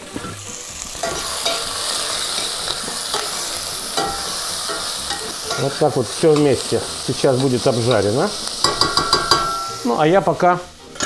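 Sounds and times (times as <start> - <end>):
meat and onion sizzling in oil: 0.0 - 11.0
stirring knocks: 8.6 - 9.6.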